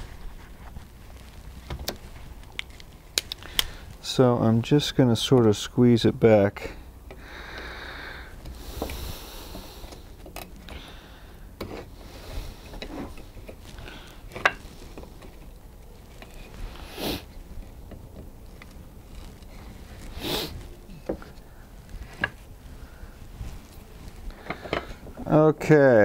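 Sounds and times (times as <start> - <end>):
short rustles: 0.0 - 4.0, 11.7 - 25.4.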